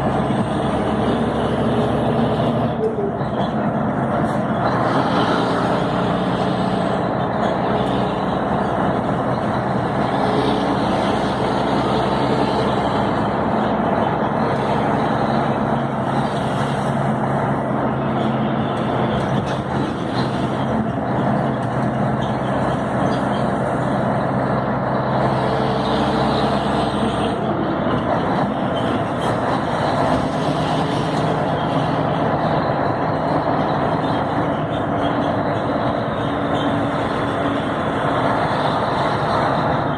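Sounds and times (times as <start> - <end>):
diesel truck engine drone: 0.0 - 39.9
tyre and road noise: 0.0 - 39.9.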